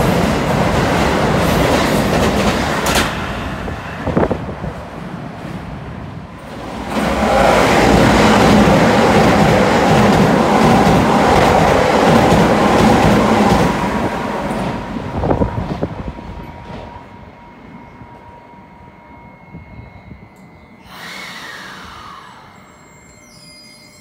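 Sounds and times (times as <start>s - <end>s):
train wheel clacks: 0.0s - 3.4s, 6.5s - 14.9s
electric train pulling in: 0.0s - 24.0s.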